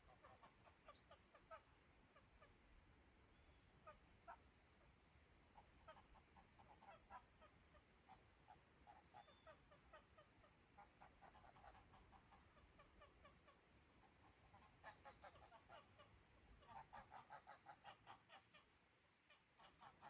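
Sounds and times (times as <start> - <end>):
steady high hiss: 0.0 - 20.0
distant birds calling: 8.9 - 13.3.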